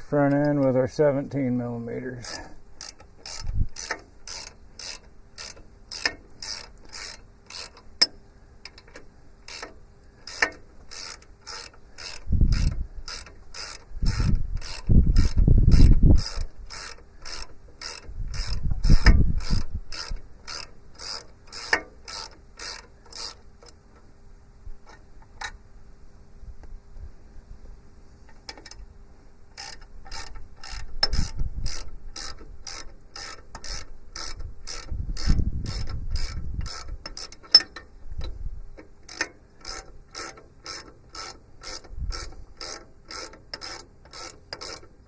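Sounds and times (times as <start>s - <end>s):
ratchet wrench clicking: 2.2s - 23.8s, 29.5s - 45.0s.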